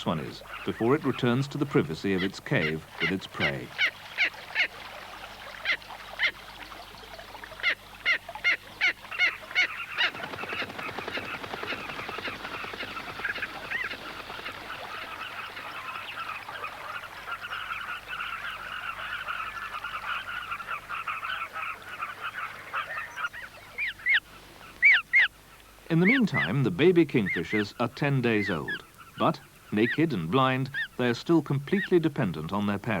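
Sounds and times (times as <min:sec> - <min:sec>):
kingfisher harsh calls: 0:00.0 - 0:04.8, 0:07.6 - 0:26.6
sharp bird calls: 0:00.0 - 0:32.5
chatter of many birds: 0:00.0 - 0:33.0.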